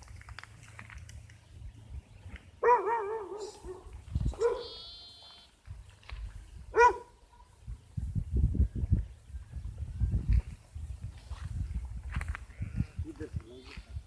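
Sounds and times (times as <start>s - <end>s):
sheep or goat bleating: 4.6s - 5.6s.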